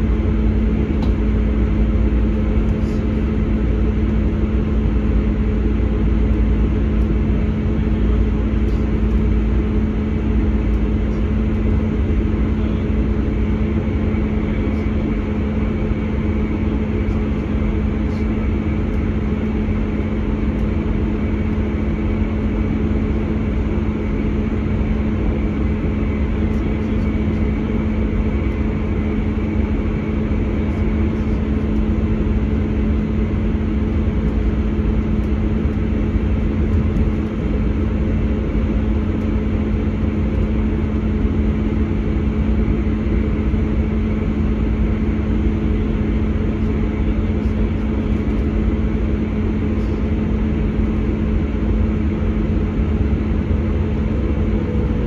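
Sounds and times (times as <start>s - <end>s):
train diesel engine drone: 0.0s - 55.0s
wheels rumbling on track: 0.0s - 55.0s.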